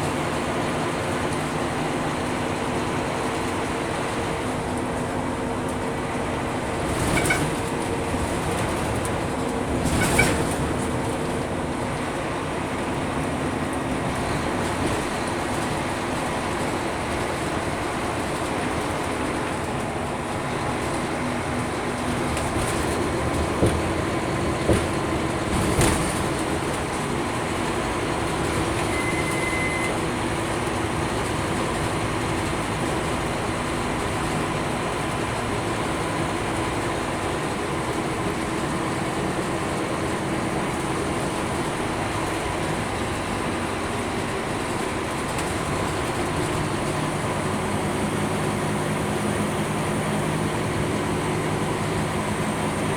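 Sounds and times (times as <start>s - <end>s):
bus engine drone and road rumble: 0.0s - 52.9s
knocks and rattles: 6.8s - 11.2s.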